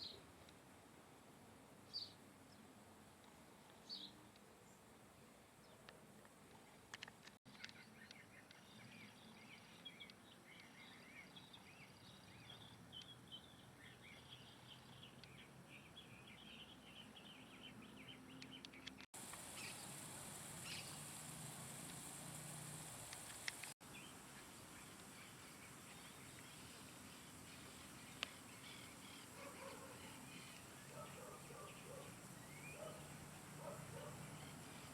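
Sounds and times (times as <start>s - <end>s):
small birds chirping: 7.5s - 34.9s
steady high hiss: 19.2s - 34.9s.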